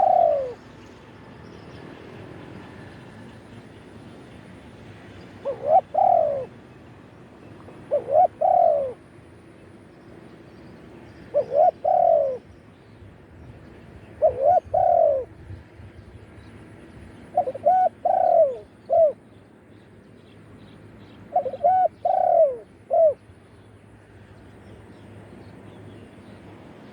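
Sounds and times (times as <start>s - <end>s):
dove cooing: 0.0s - 0.6s, 5.4s - 6.6s, 7.6s - 9.0s, 11.3s - 12.5s, 14.2s - 15.4s, 17.3s - 19.2s, 21.3s - 23.2s.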